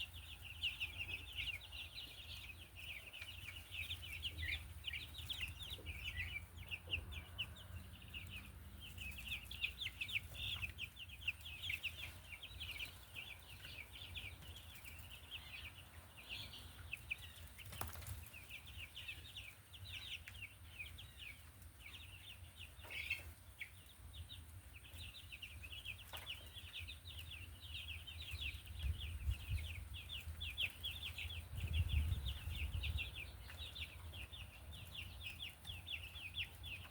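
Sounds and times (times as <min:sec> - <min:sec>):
chicks peeping: 0:00.0 - 0:36.9.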